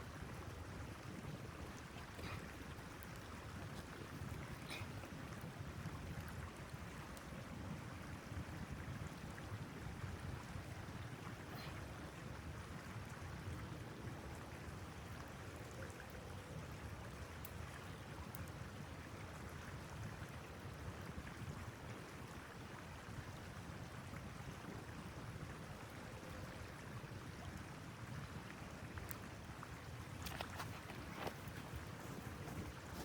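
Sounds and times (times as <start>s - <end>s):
rushing wind: 29.8s - 33.0s.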